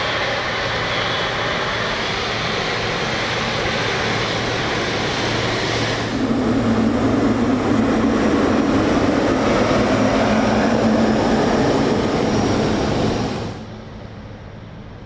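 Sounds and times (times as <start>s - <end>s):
jet airliner engines running: 0.0s - 15.0s.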